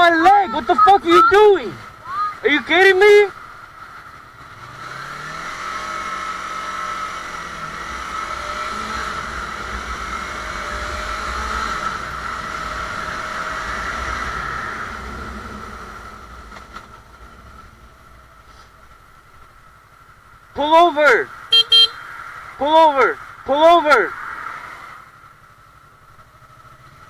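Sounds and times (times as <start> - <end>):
motorcycle engine running: 0.0 - 24.0, 25.0 - 27.0
road and wind noise: 0.0 - 27.0.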